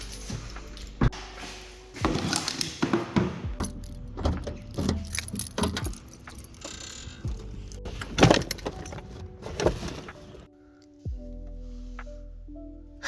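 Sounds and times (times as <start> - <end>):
keys jangling: 0.0 - 1.2, 3.5 - 10.1.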